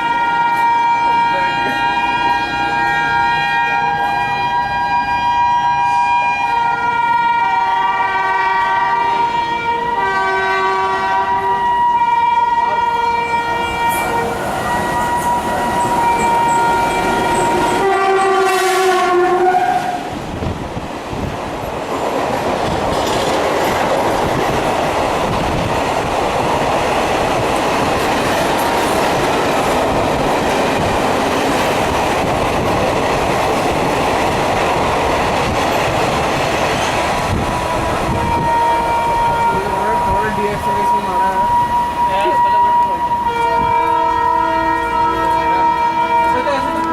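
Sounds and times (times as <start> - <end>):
locomotive horn blast: 0.0 - 20.2, 37.5 - 46.9
train coaches rumbling past: 0.0 - 46.9
wheels clattering over rail joints: 21.6 - 37.7.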